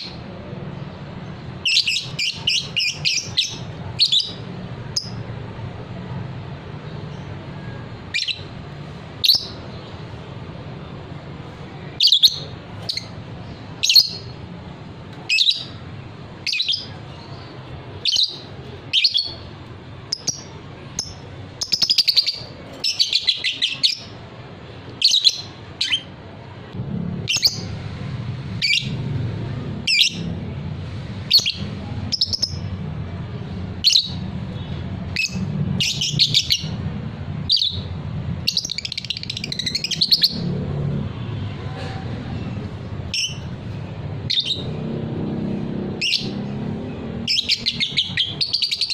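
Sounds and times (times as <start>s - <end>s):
lovebird chirping: 16.4s - 19.5s, 20.1s - 24.1s, 47.3s - 48.9s.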